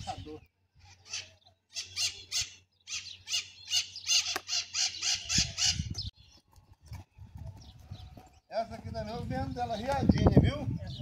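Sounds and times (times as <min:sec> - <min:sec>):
bird squawking: 0:00.8 - 0:06.0.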